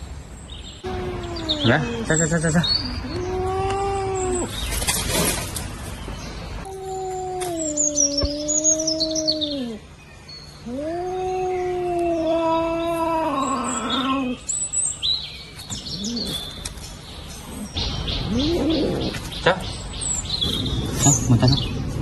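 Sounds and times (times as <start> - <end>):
faint birds chirping: 0.0 - 22.0
cat yowling: 0.8 - 2.1, 2.9 - 4.5, 6.7 - 9.8, 10.6 - 14.4.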